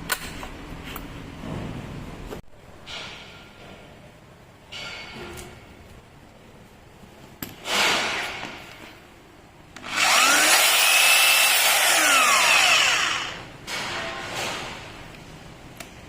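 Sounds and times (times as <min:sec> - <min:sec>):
electric motor spinning up: 0:09.8 - 0:13.4.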